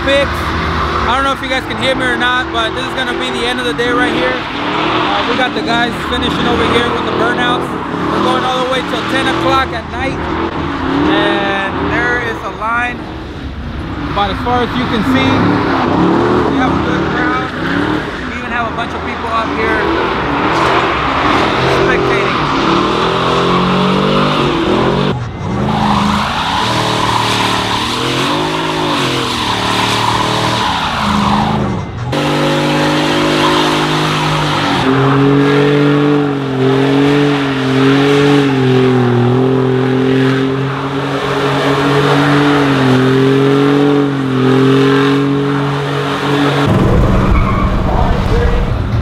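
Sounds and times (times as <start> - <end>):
truck engine revving: 0.0 - 49.0
tyres squealing: 14.1 - 48.6.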